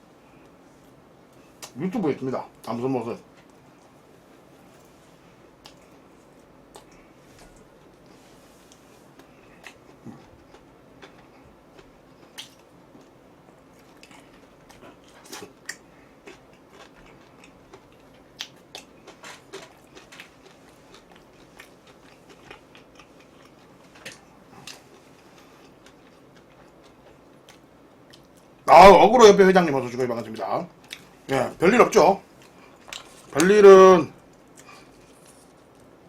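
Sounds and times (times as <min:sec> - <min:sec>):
person chewing crunchy food: 0:05.6 - 0:28.6, 0:34.2 - 0:36.0.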